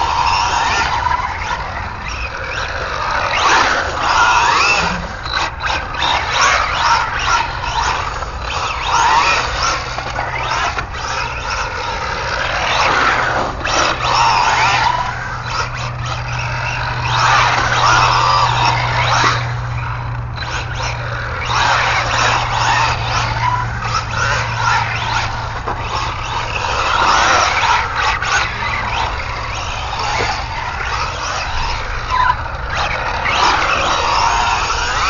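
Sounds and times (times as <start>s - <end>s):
electric motor whine: 0.0s - 35.0s.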